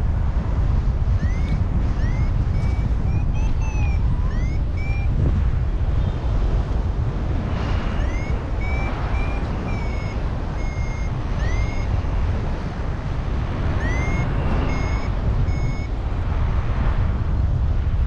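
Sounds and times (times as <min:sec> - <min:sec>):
wind rumbling on microphone: 0:00.0 - 0:18.0
short high beeps: 0:01.2 - 0:05.1, 0:08.0 - 0:11.9, 0:13.8 - 0:15.9.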